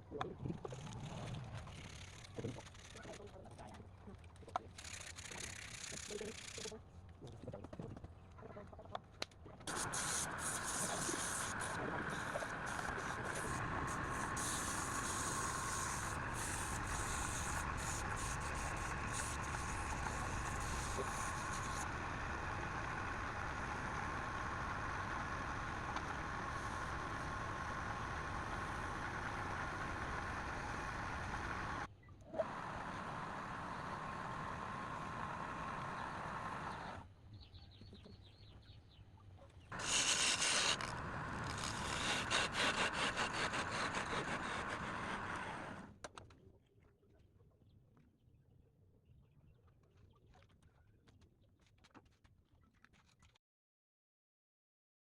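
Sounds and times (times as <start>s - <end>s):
wood lathe motor hum: 9.7s - 37.0s, 39.8s - 45.9s.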